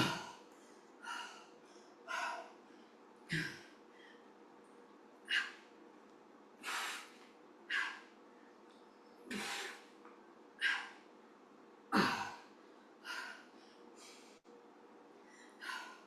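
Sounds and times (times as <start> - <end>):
person breathing hard: 0.0 - 3.0, 6.6 - 8.2, 9.3 - 9.9, 15.2 - 16.0.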